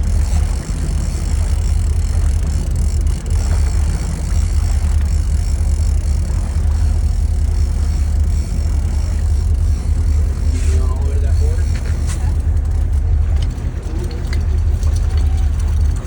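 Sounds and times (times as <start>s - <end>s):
boat motor running: 0.0s - 16.0s.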